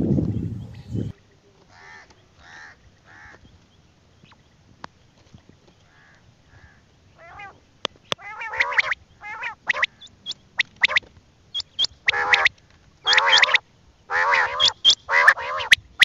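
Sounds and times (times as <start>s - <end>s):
bird harsh calls: 1.7s - 3.6s, 5.9s - 16.0s.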